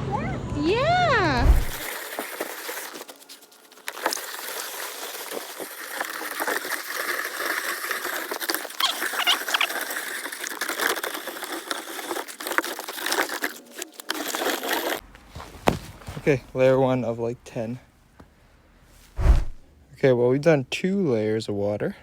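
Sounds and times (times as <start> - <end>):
hose water spraying on snow: 1.4 - 15.0.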